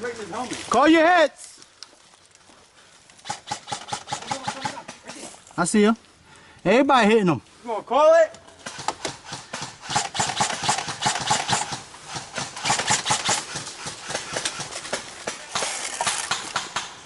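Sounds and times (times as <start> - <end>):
airsoft guns firing: 3.2 - 5.1, 8.6 - 17.0.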